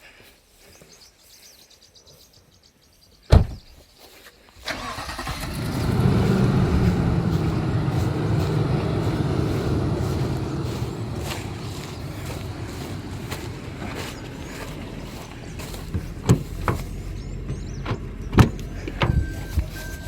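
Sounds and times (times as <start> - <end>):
loud thump: 3.3 - 3.7
engine starting and running: 4.6 - 20.0.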